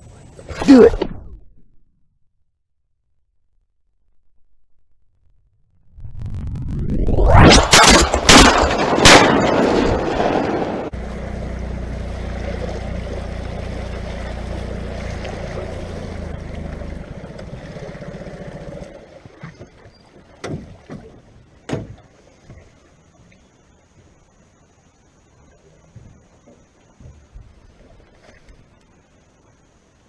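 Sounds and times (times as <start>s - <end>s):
shotgun blasts: 7.5s - 10.8s
outboard motor droning: 10.9s - 21.3s.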